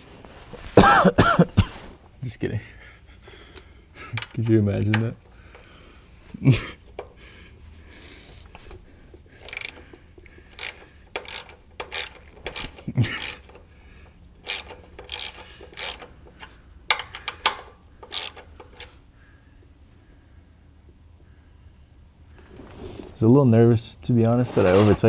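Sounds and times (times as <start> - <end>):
ratchet wrench clicking: 9.4 - 9.8, 10.5 - 13.7, 14.4 - 18.9.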